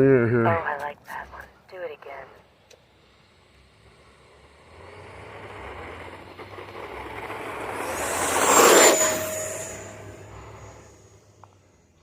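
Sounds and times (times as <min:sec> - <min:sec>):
electric ducted fan jet whine: 0:02.4 - 0:11.8.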